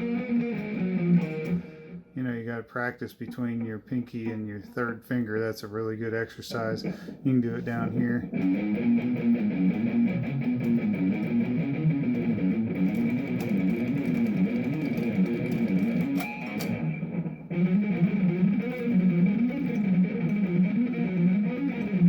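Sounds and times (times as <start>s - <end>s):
electric guitar fast picking: 0.0s - 2.1s, 7.8s - 22.0s.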